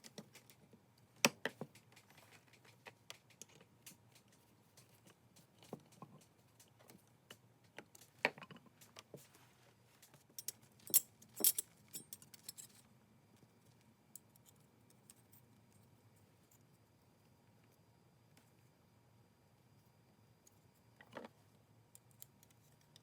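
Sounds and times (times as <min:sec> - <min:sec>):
metal parts clicking and clinking: 0:10.4 - 0:12.9.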